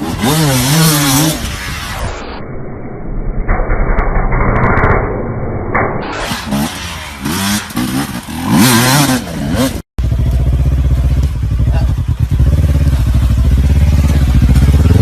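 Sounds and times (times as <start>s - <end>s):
motorcycle engine revving: 0.0s - 2.1s, 6.2s - 15.0s
motorcycle engine running muffled: 8.5s - 15.0s.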